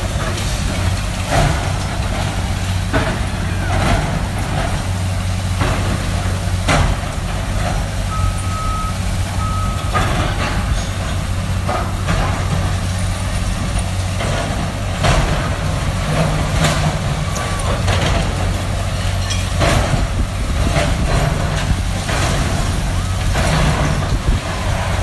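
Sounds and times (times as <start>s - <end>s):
diesel demolition machinery running: 0.0s - 25.0s
reversing alarm: 8.1s - 10.2s.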